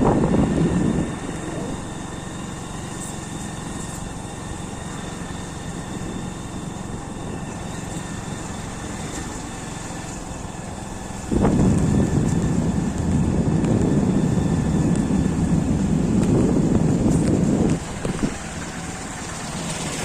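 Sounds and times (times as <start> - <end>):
wind buffeting microphone: 0.0 - 3.7, 10.9 - 20.0
motorcycle engine running: 0.0 - 20.0.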